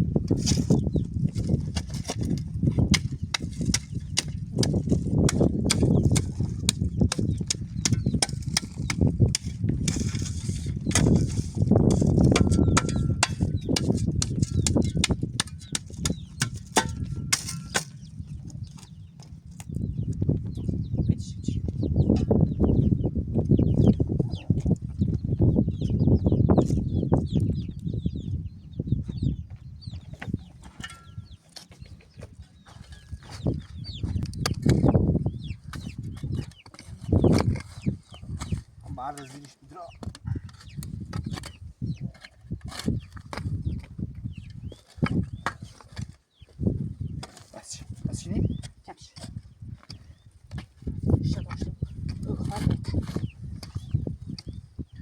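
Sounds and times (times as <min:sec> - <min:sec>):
small birds chirping: 0:00.5 - 0:55.0
chickens clucking: 0:23.9 - 0:24.7.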